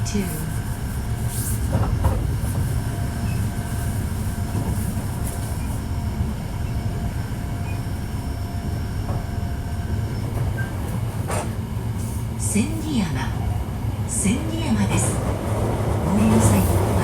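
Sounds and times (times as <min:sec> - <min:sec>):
rumble of wheels on track: 0:00.0 - 0:17.0.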